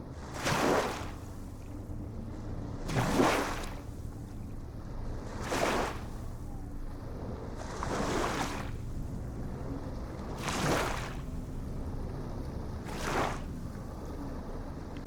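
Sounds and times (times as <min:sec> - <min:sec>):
ocean waves washing in: 0:10.2 - 0:14.7.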